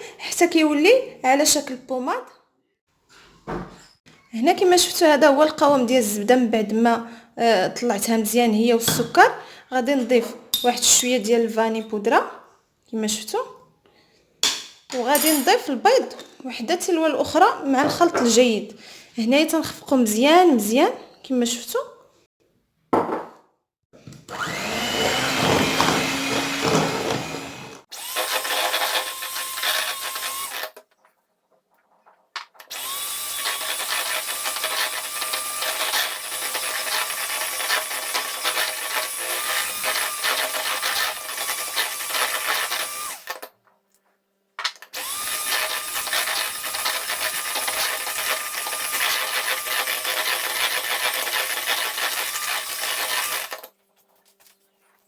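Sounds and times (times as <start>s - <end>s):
electric hand mixer whining: 24.3s - 30.7s, 32.7s - 43.3s, 45.0s - 53.6s.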